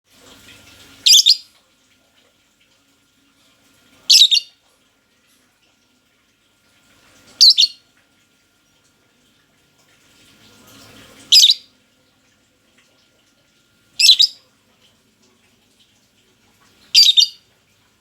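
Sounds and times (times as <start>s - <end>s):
bird shrill double chirps: 7.4s - 7.7s, 11.3s - 11.6s, 17.0s - 17.4s.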